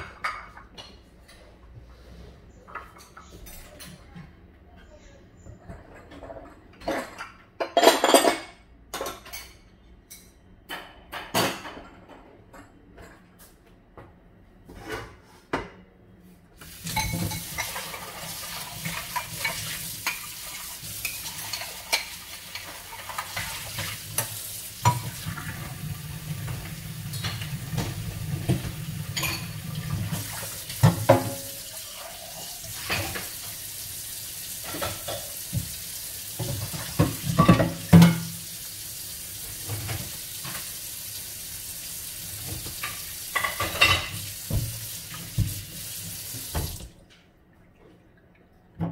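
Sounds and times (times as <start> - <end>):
utensils and dishes clinking: 2.5 - 4.2, 5.6 - 13.4, 16.6 - 25.7, 26.4 - 33.4, 36.4 - 38.4, 42.4 - 45.5.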